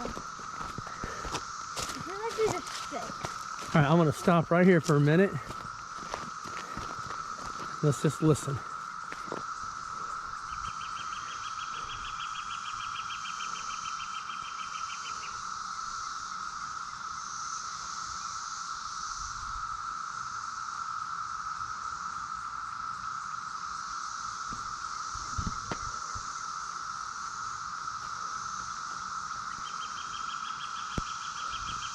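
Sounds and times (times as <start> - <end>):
high hiss: 0.0 - 12.3
cicadas chorusing: 0.0 - 31.9.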